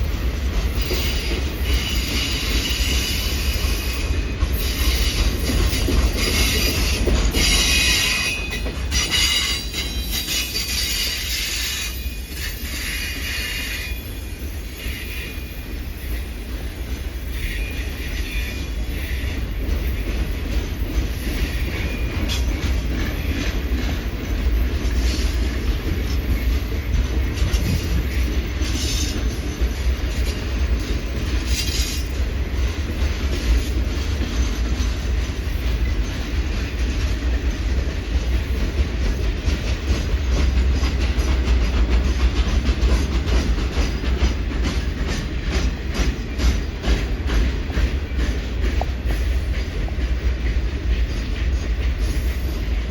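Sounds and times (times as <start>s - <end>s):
clicking at rail joints: 0.0s - 13.8s, 15.7s - 52.9s
freight train wheels rumbling: 0.0s - 52.9s
wheel squeals: 0.8s - 16.4s.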